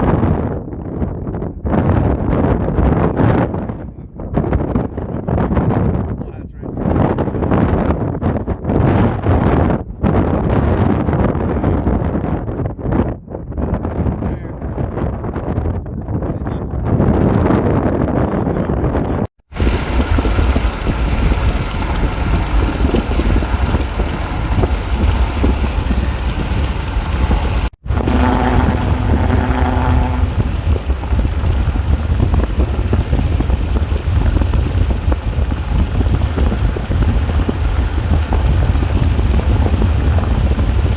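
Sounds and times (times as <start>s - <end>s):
wind buffeting microphone: 0.0s - 40.9s
steady pitched tone: 19.5s - 35.1s.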